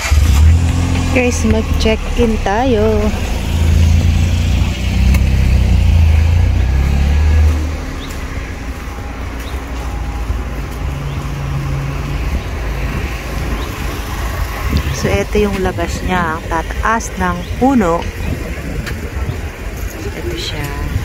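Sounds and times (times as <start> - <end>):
car engine at low revs: 0.0 - 21.0
quiet steady rumble: 0.0 - 21.0.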